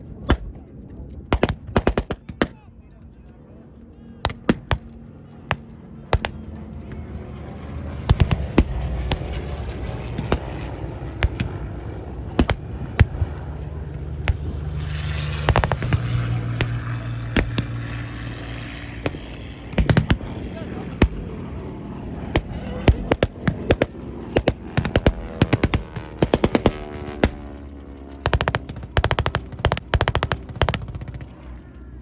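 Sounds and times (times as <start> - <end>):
engine drone: 0.0 - 32.0
blank rifle shots: 15.4 - 17.8.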